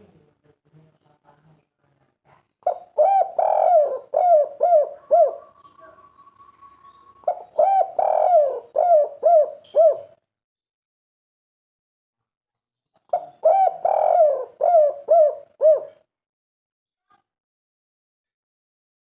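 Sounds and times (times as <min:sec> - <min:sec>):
dove cooing: 0:02.6 - 0:10.2, 0:13.1 - 0:16.1.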